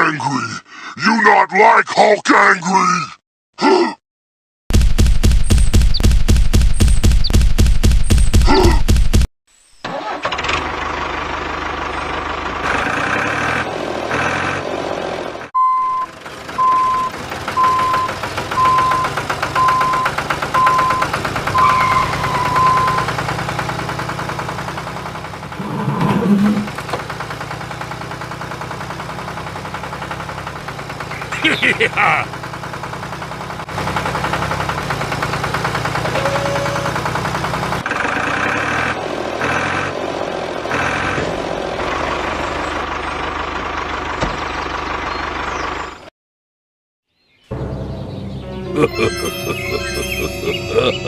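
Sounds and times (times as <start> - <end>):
engine running steadily: 9.9 - 46.0
tractor engine chugging: 9.9 - 46.0
evenly spaced beeps: 15.6 - 23.2, 48.8 - 51.0.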